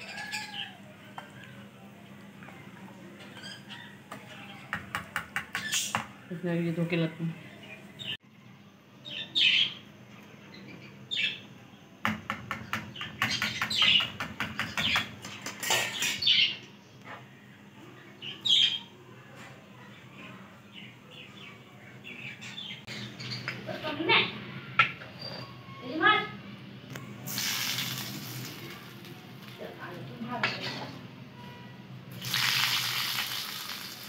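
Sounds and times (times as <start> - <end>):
birds chirping: 0.0 - 8.2, 8.9 - 27.1.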